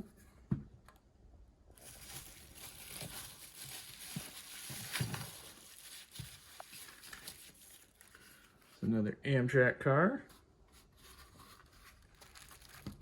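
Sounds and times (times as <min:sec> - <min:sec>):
bubble wrap rustling: 0:01.7 - 0:08.8, 0:10.7 - 0:13.0.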